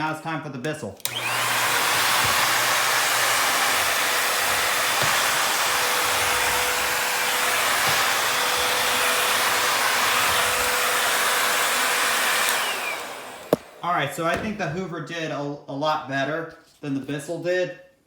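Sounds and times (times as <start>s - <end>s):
stick vacuum running: 1.0s - 14.6s.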